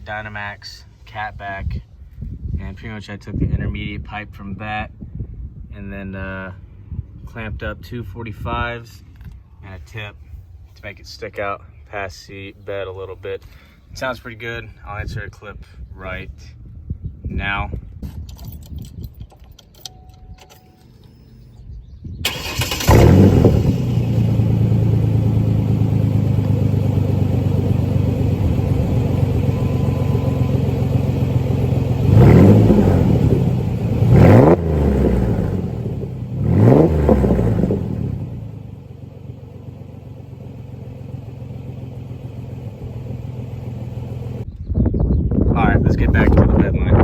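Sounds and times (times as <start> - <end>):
engine starting: 22.2 - 24.0
engine revving in quick blips: 22.2 - 39.5
engine idling: 22.2 - 44.5.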